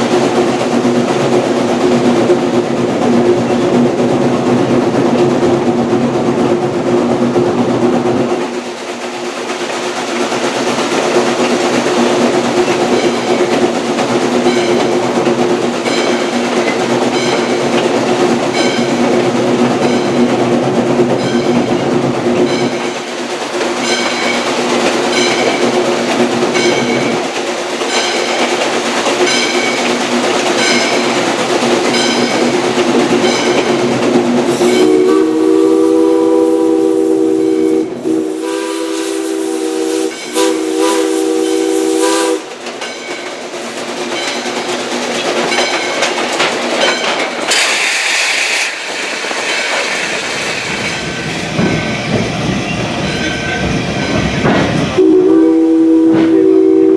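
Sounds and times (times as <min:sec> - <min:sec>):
train wheels clicking: 0:00.0 - 0:56.9
steam whistle blasts: 0:34.5 - 0:42.5, 0:55.0 - 0:56.9.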